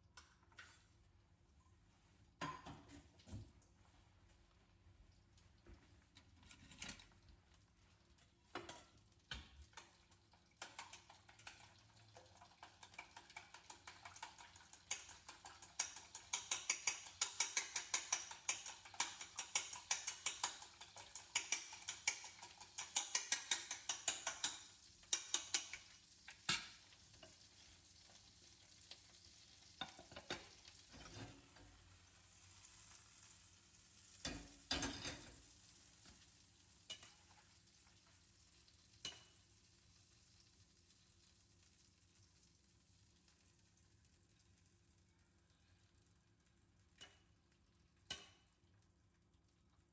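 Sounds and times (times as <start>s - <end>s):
beating egg in a bowl: 8.5s - 27.4s.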